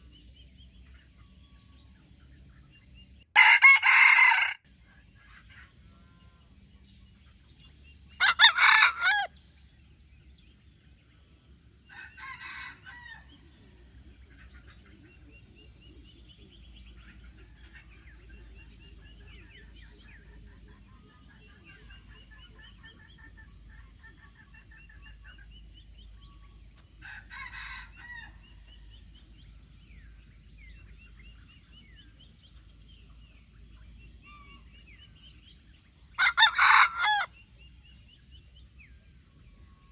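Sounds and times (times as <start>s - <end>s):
high insect drone: 0.0s - 39.9s
rooster crowing: 3.4s - 4.6s, 8.2s - 9.3s, 11.9s - 13.4s, 27.0s - 28.6s, 36.2s - 37.4s
small bird chirps: 28.0s - 35.8s.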